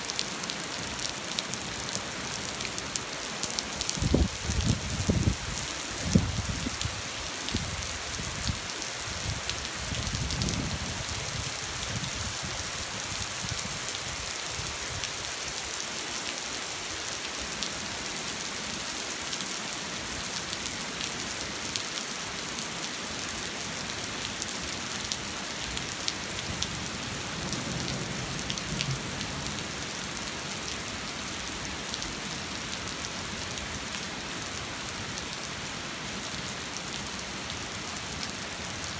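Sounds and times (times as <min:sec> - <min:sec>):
rain pattering on hard surface: 0:00.0 - 0:11.3, 0:23.9 - 0:34.0.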